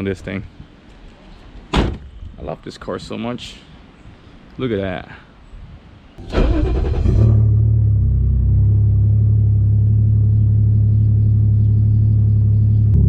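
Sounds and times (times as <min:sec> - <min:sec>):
car engine starting and idling: 0:06.2 - 0:13.0.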